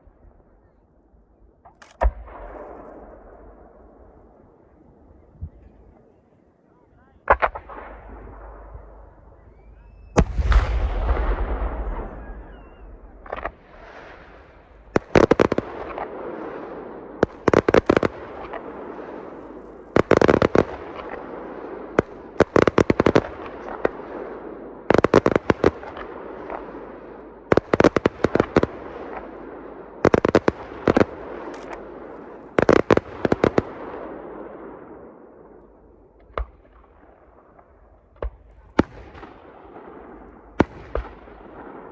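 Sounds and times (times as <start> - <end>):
sharp cracks: 1.6 - 3.8, 7.3 - 16.2, 17.2 - 21.4, 30.1 - 34.5, 36.1 - 41.9
fireworks bursting: 7.2 - 26.9, 27.5 - 41.9
echoing rumble: 7.5 - 17.4.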